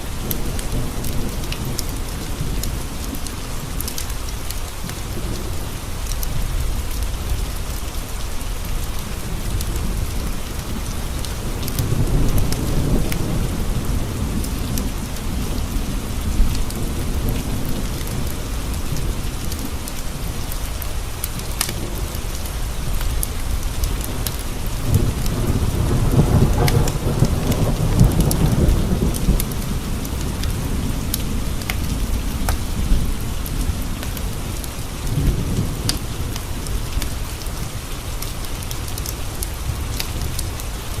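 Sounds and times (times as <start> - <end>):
steady rain: 0.0 - 41.0
thunder rumbling: 8.3 - 37.9.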